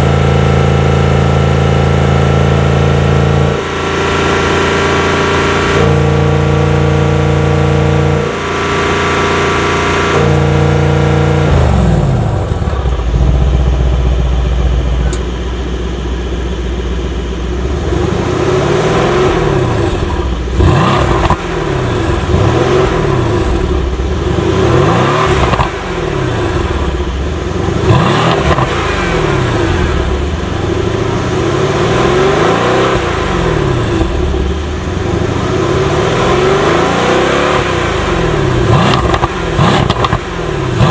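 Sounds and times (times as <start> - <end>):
car engine revving: 0.0 - 40.9
sharp exhaust cracks: 9.8 - 40.9.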